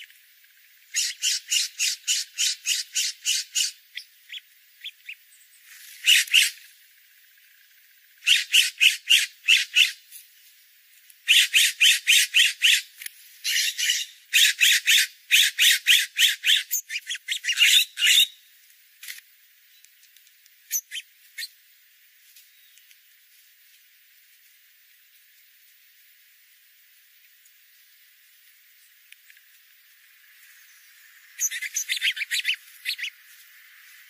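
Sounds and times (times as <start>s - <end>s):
bird calling in rapid runs: 6.0s - 6.6s, 31.4s - 33.2s
faint ticks: 10.9s - 11.2s, 18.6s - 20.8s, 22.2s - 25.8s, 28.4s - 30.6s.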